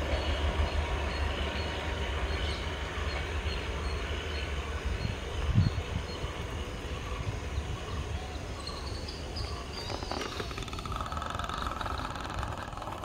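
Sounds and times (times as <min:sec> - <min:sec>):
diesel train rumble: 0:00.0 - 0:13.0
open-air background noise: 0:00.0 - 0:13.0.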